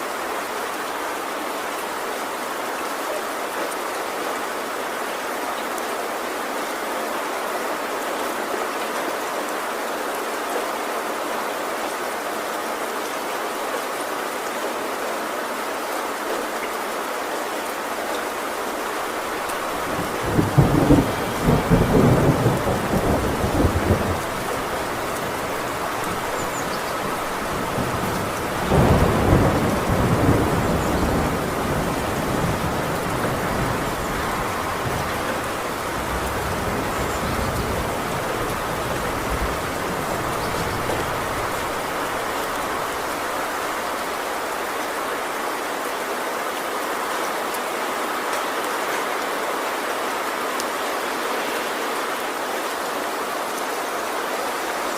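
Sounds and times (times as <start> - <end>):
heavy rain on a tin roof: 0.0 - 54.9
thunder rumbling: 19.2 - 44.2.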